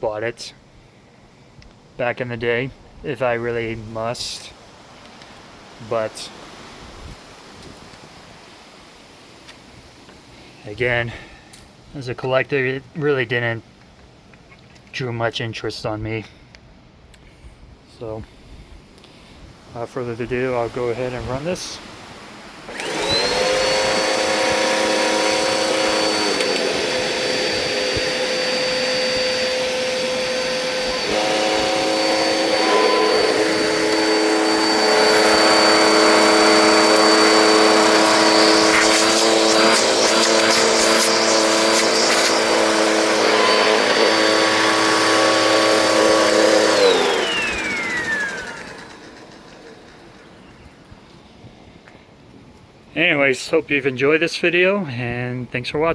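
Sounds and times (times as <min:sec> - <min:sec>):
vacuum cleaner whining: 0:20.2 - 0:50.7.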